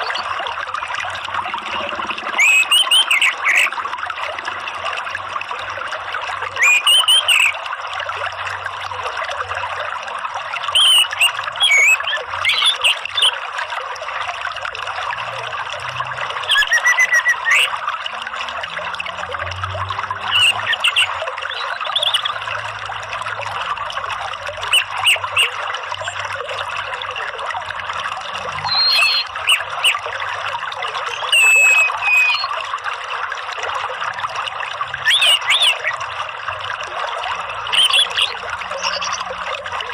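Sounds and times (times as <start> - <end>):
running water trickling: 0.0 - 39.9.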